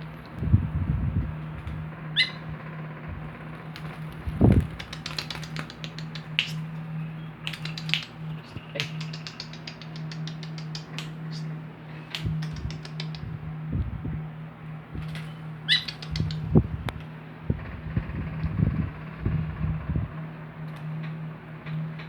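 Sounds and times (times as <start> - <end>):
steady low hum: 0.0 - 22.0
bird sharp chips: 2.2 - 2.4, 3.8 - 13.3, 15.1 - 16.5.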